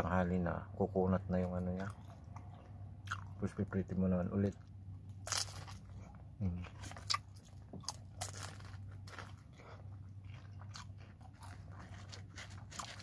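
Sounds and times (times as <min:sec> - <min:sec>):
low steady hum: 0:00.0 - 0:13.0
crunching fried spring roll: 0:04.5 - 0:13.0.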